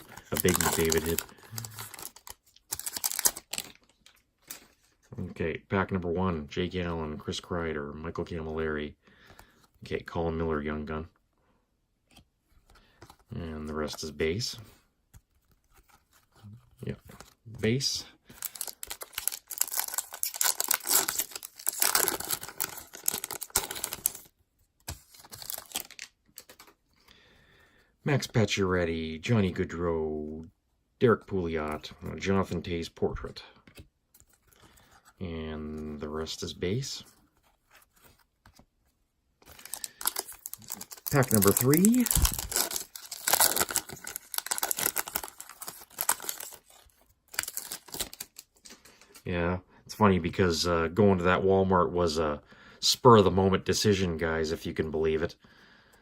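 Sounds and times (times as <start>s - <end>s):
plastic wrapper crinkling and tearing: 0.0s - 4.7s, 18.3s - 26.8s, 39.4s - 49.2s
cards clicking and rustling: 0.0s - 4.8s, 18.3s - 26.8s, 39.4s - 49.2s.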